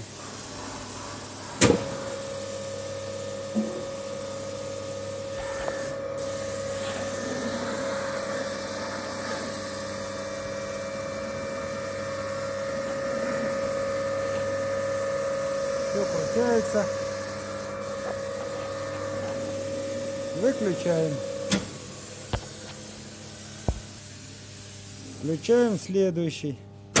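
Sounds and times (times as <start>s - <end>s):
electric motor whining: 5.2s - 22.8s
switch click: 21.5s - 21.7s.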